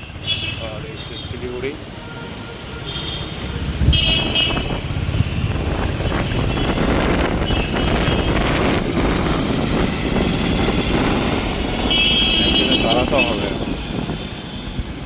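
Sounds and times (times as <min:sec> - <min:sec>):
vehicle horn toots: 0:02.0 - 0:04.8, 0:06.0 - 0:08.7, 0:11.8 - 0:14.7
motorcycle engine running: 0:03.4 - 0:12.8.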